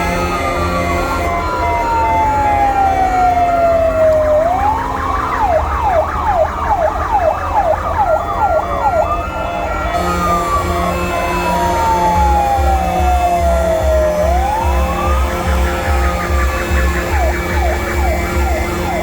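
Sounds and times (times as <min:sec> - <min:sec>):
sirens alternating tones: 0:00.0 - 0:19.0
electronic siren wailing and yelping: 0:00.9 - 0:19.0
low engine rumble: 0:09.9 - 0:19.0.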